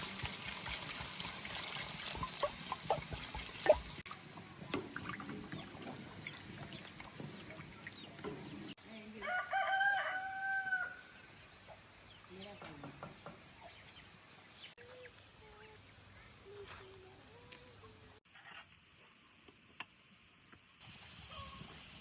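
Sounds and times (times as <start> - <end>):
rooster crowing: 9.2 - 11.2
background hiss: 10.9 - 22.0.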